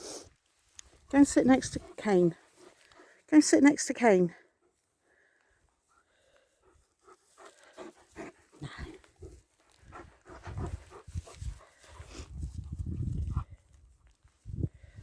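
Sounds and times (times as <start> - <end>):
dog panting and snuffling: 1.1 - 3.3, 5.8 - 14.2.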